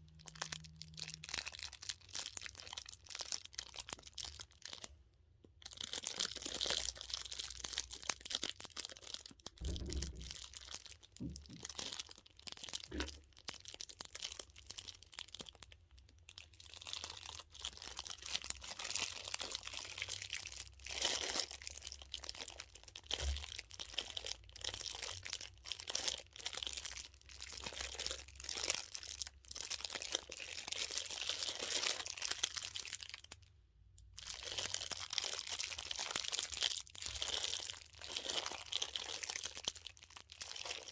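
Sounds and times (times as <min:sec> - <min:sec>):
plastic vinyl crinkling: 0:00.0 - 0:40.9
soft thumps: 0:09.6 - 0:10.6, 0:11.2 - 0:11.8.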